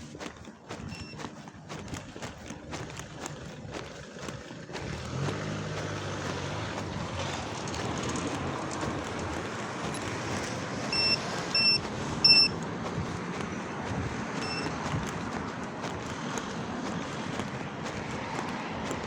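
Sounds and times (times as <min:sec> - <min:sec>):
traffic noise: 0:00.0 - 0:19.0
vehicle engine passing: 0:00.0 - 0:19.0
short high electronic beeps: 0:10.9 - 0:12.5.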